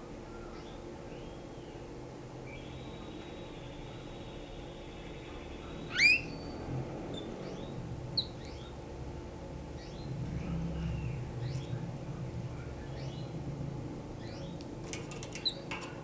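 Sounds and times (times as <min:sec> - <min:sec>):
canary singing: 0:05.8 - 0:08.7.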